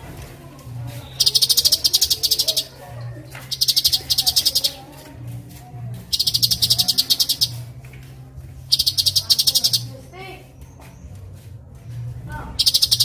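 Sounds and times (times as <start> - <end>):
bird rapid buzzy trilling: 1.1 - 2.8, 3.5 - 4.9, 6.1 - 7.7, 8.6 - 10.0, 12.6 - 13.0.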